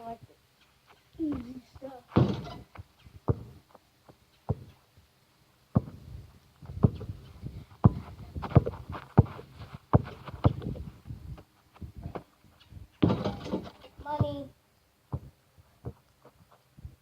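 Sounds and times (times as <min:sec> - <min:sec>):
basketball bouncing on hard court: 0:02.2 - 0:02.6, 0:03.3 - 0:03.6, 0:04.5 - 0:04.7, 0:05.8 - 0:06.0, 0:06.7 - 0:07.2, 0:07.8 - 0:10.8, 0:15.1 - 0:16.0.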